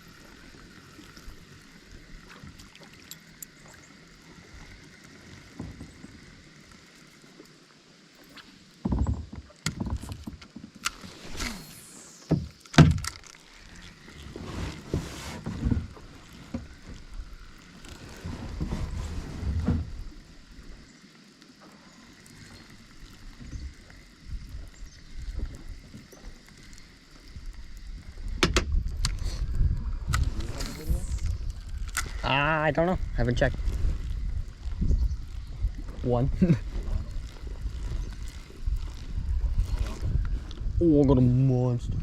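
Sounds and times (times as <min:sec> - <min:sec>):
faint water and wind: 0:00.0 - 0:42.0
knocks and bumps on kayak: 0:08.8 - 0:10.6.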